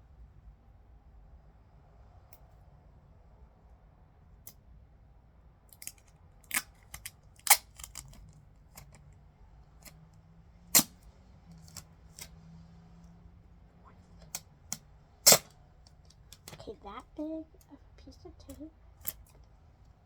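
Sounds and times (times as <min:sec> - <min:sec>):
scissors snipping tape: 0:05.8 - 0:08.2, 0:10.7 - 0:12.3, 0:14.2 - 0:15.5.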